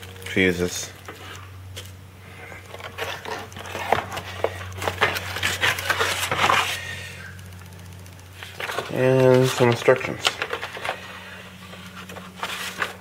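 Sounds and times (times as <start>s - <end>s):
steady low hum: 0.0s - 13.0s
packaging rustling and crinkling: 2.6s - 6.8s, 8.4s - 13.0s.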